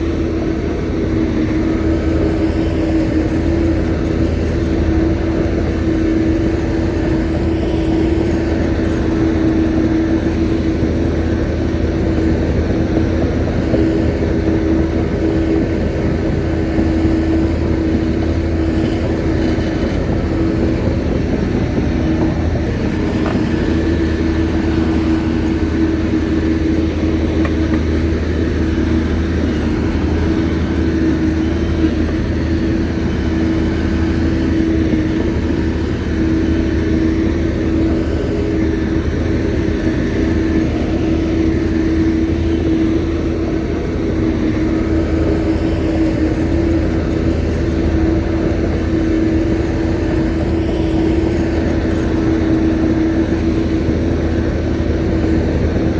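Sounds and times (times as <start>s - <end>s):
bulldozer diesel engine running: 0.0s - 55.9s.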